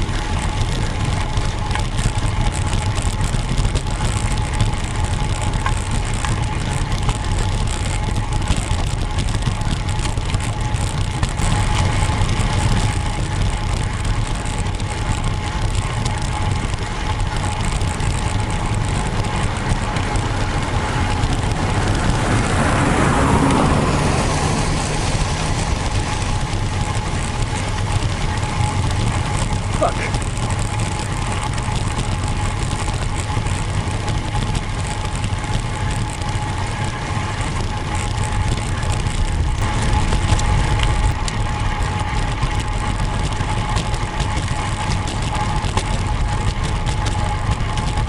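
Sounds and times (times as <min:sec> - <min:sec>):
bicycle road noise: 0:00.0 - 0:48.0
thin steady whine: 0:00.0 - 0:48.0
wind rumble: 0:00.0 - 0:48.0
vehicle passing: 0:18.7 - 0:27.2.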